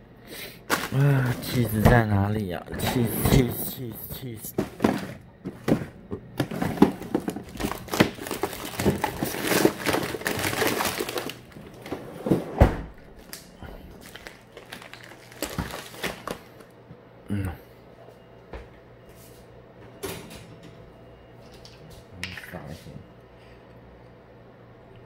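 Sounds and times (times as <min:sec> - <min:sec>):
plastic packaging crinkling: 0:00.6 - 0:01.8, 0:06.4 - 0:11.9, 0:13.2 - 0:16.7.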